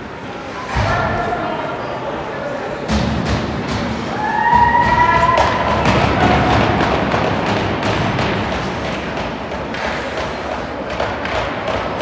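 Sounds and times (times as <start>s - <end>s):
rink crowd noise: 0.0s - 12.0s
puck and sticks hitting boards: 2.9s - 12.0s.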